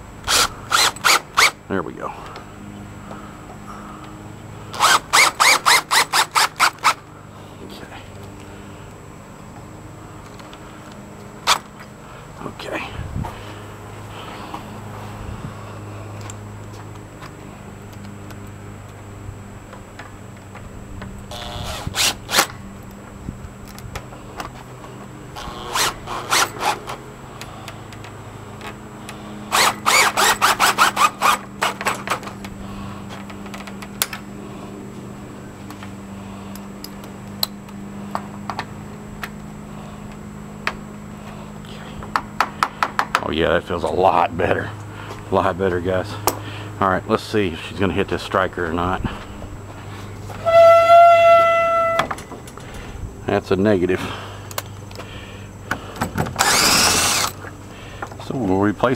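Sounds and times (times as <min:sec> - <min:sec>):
steady low hum: 0:00.0 - 0:58.9
cordless driver running in bursts: 0:00.2 - 0:01.6, 0:02.5 - 0:07.1, 0:21.2 - 0:22.7, 0:23.7 - 0:36.7, 0:54.4 - 0:58.1.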